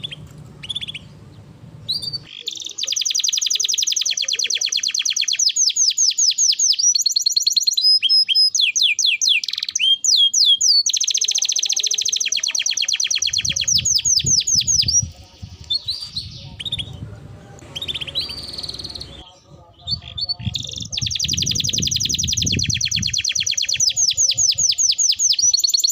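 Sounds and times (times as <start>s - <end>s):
low background rumble: 0.0s - 2.3s, 13.5s - 21.8s
canary singing in trills: 0.0s - 25.9s.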